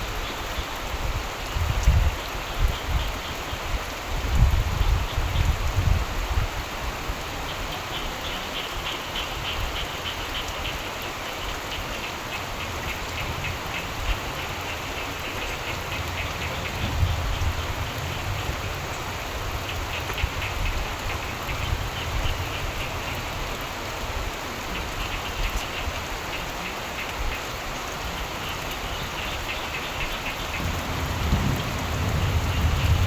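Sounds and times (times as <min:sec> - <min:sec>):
steady rain: 0:00.0 - 0:33.0
frogs croaking in trills: 0:07.2 - 0:33.0
low thunder rumbles: 0:15.4 - 0:22.9, 0:30.4 - 0:33.0.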